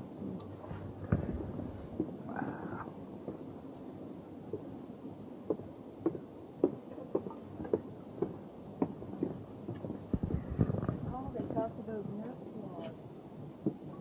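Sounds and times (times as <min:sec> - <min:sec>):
heavier thuds: 0:01.0 - 0:02.1.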